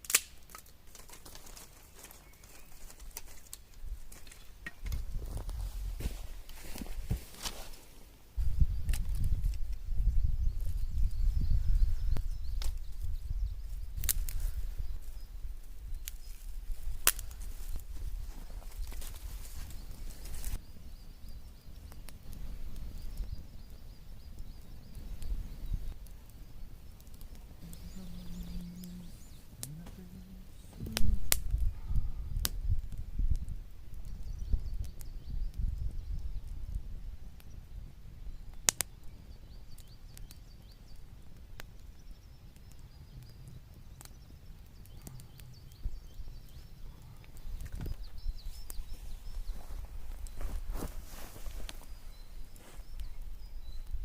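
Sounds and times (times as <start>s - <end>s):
sharp cracks: 0.0s - 5.0s, 14.0s - 14.5s, 17.0s - 17.5s, 30.7s - 31.8s
clicks and crunches: 0.0s - 7.9s, 14.0s - 14.6s, 16.0s - 20.6s, 49.4s - 54.0s
small birds chirping: 0.1s - 54.0s.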